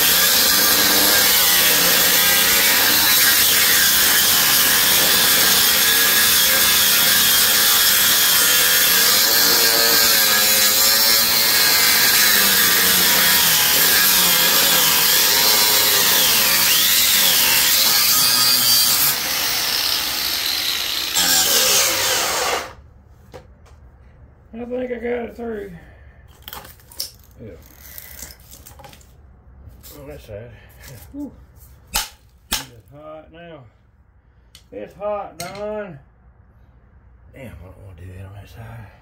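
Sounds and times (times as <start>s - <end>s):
reciprocating saw cutting metal: 0.0s - 22.8s.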